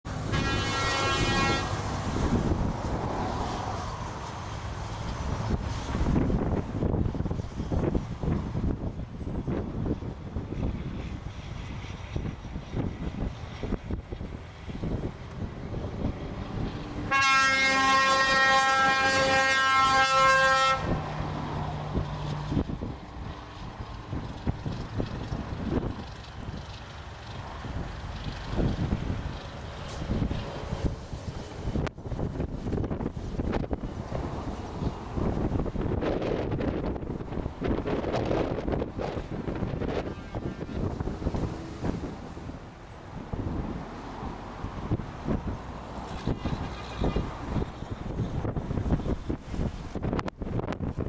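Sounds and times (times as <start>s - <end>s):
heavy trucks rumbling past: 0.1s - 51.0s
truck horn: 0.2s - 1.9s, 17.1s - 21.1s, 46.2s - 47.4s.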